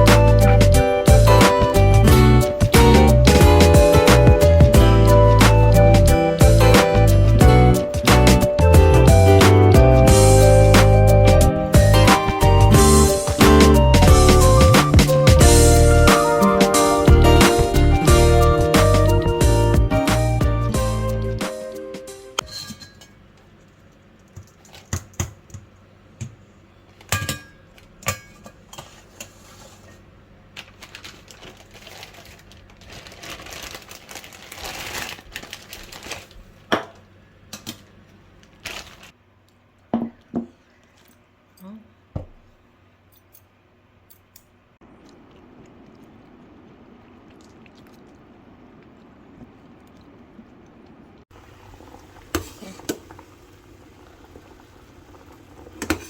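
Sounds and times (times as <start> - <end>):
dishes and utensils clinking: 22.4 - 23.2
pot boiling: 44.8 - 56.0
steady hiss: 51.2 - 56.0.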